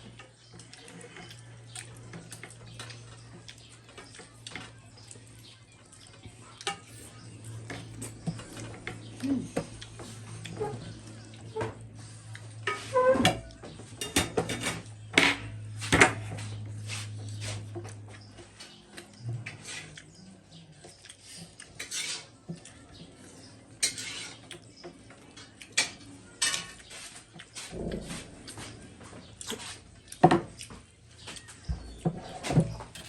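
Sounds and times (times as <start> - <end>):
dishes clinking and clattering: 12.5 - 16.4, 23.8 - 26.9.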